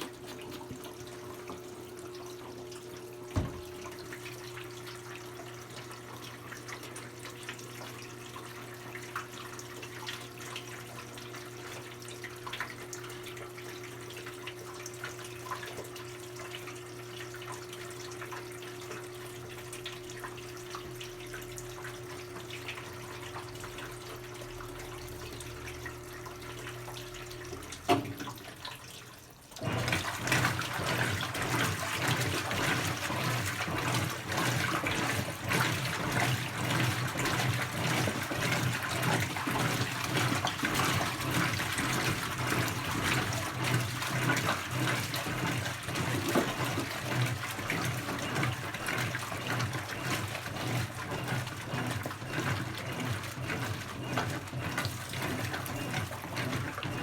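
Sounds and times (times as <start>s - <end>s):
washing machine taking in water: 0.0s - 57.0s
washing machine click: 3.3s - 4.0s.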